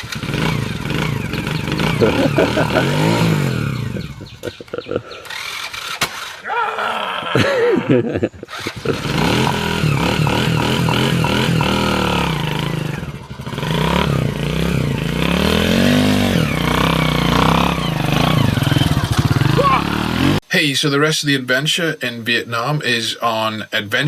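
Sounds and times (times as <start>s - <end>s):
motorcycle engine revving: 0.0s - 6.6s, 8.3s - 20.4s.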